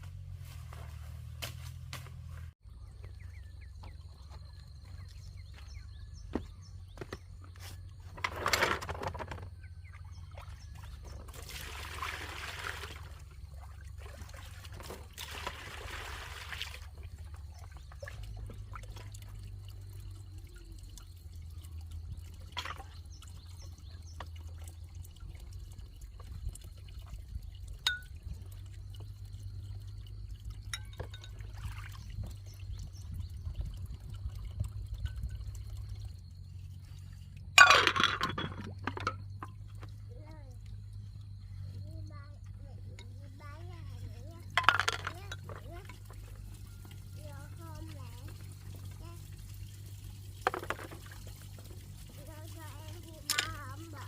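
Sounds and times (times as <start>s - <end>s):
low steady hum: 0.0s - 54.0s
water being poured: 9.8s - 54.0s.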